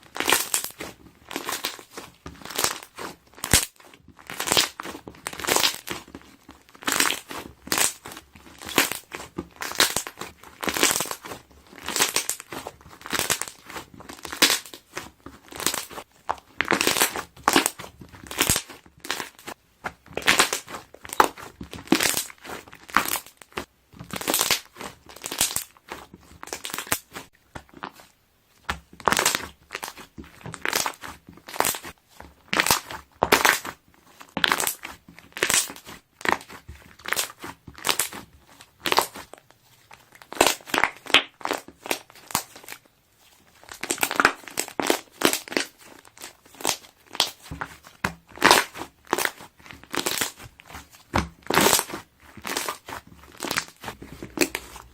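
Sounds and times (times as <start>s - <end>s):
slime being squeezed: 6.8s - 19.4s, 20.1s - 25.8s, 43.6s - 54.9s.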